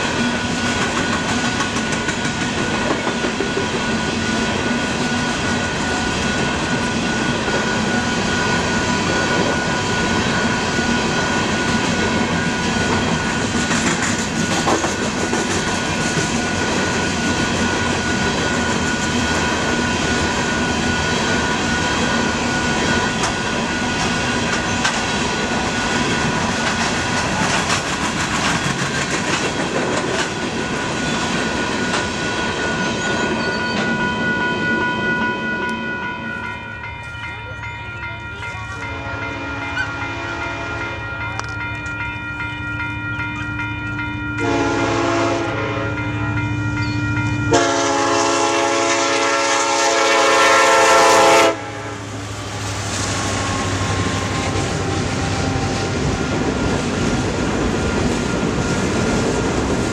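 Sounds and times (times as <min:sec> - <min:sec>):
train wheels clacking on rail joints: 0:00.0 - 0:21.0, 0:21.7 - 0:34.0
crossing bell ringing: 0:00.0 - 0:59.6.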